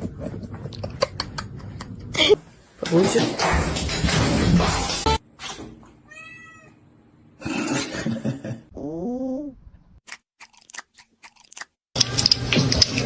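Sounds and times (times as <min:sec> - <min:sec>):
cat meowing: 0:06.1 - 0:06.8.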